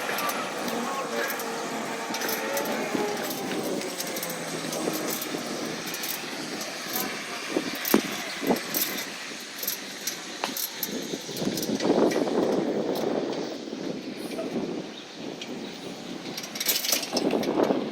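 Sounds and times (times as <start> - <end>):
rattling: 0.0 - 11.8
recycling truck running: 0.0 - 17.9.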